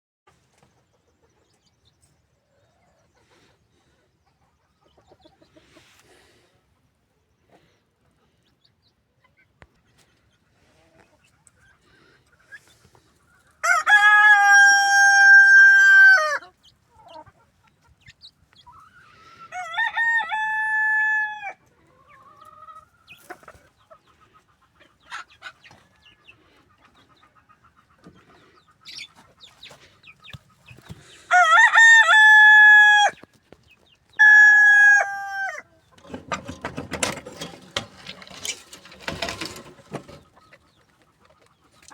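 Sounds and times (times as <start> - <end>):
hens clucking softly: 0.3 - 13.6, 15.1 - 19.8, 21.5 - 31.3, 35.0 - 41.9
roosters crowing: 13.6 - 16.5, 19.2 - 21.7, 31.0 - 33.3, 34.1 - 40.2.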